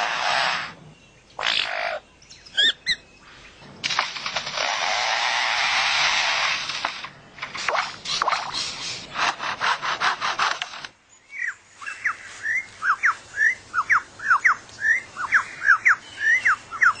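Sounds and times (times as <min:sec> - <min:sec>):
bird mimicking chainsaw rasping: 0:00.0 - 0:00.8, 0:04.1 - 0:10.9.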